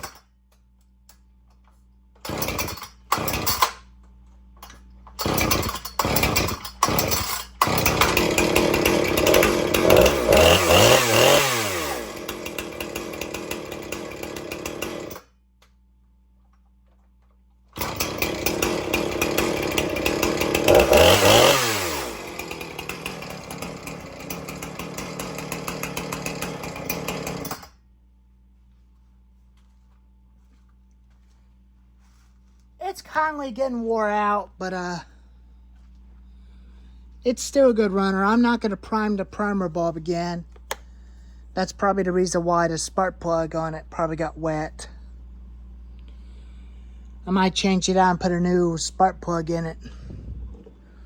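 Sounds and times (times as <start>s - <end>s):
chainsaw sputtering and revving: 0.0s - 0.2s, 2.2s - 3.8s, 5.1s - 15.3s, 17.8s - 27.7s.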